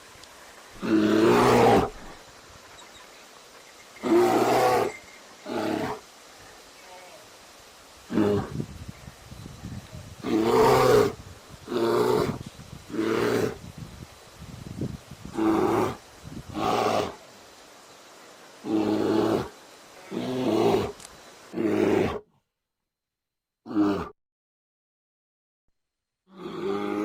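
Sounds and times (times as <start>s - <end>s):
bear roaring: 0.8s - 2.2s, 4.0s - 6.0s, 10.2s - 13.6s, 15.3s - 17.2s, 18.6s - 22.3s, 23.7s - 24.1s, 26.3s - 27.0s.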